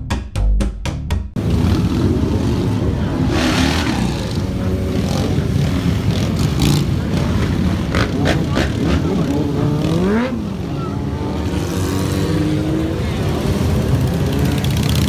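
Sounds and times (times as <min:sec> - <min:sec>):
rhythmic beats: 0:00.0 - 0:01.4.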